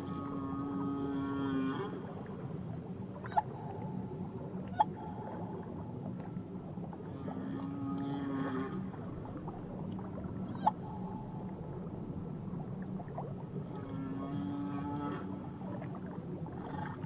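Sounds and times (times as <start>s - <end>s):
whale low call: 7.0s - 9.1s, 13.6s - 17.0s.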